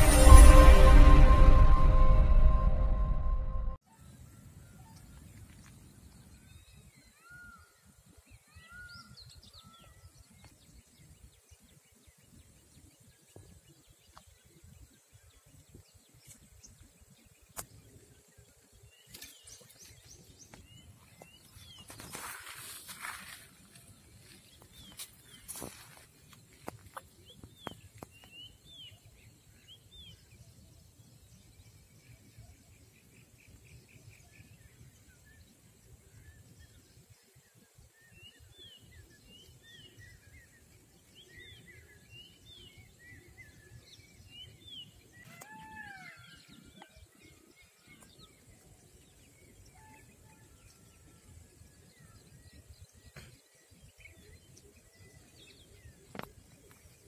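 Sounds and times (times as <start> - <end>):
small birds chirping: 4.9 - 57.0.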